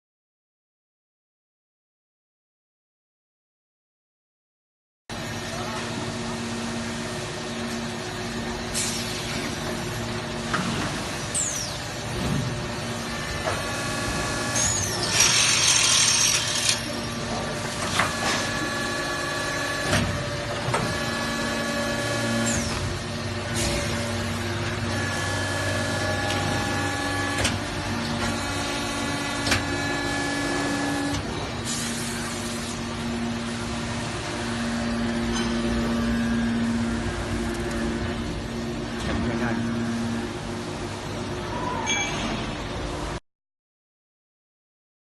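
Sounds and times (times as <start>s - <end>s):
pneumatic air hiss: 8.7s - 9.4s.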